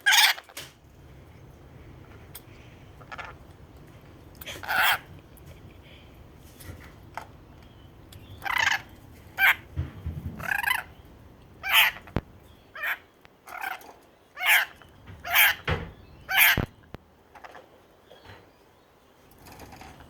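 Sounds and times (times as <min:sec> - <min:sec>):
bird making harsh calls: 0:04.6 - 0:05.1, 0:08.4 - 0:09.7, 0:11.6 - 0:12.1, 0:12.7 - 0:13.8, 0:14.4 - 0:15.7, 0:16.3 - 0:16.8
low thumps: 0:09.6 - 0:11.3.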